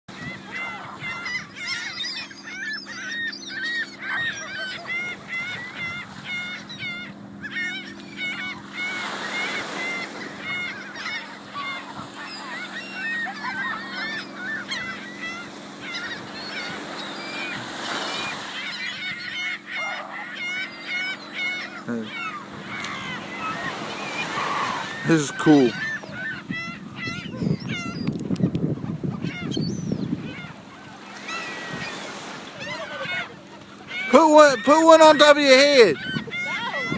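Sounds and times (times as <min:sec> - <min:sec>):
steady low hum: 0:00.1 - 0:25.0
gulls squawking: 0:00.1 - 0:36.9.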